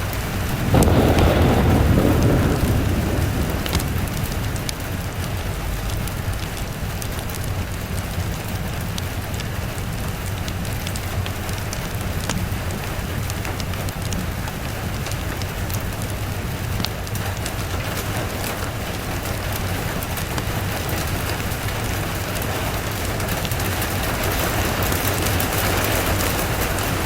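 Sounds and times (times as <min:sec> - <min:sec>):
steady rain: 0:00.0 - 0:27.0
thunder rolling: 0:00.3 - 0:09.0, 0:18.0 - 0:27.0.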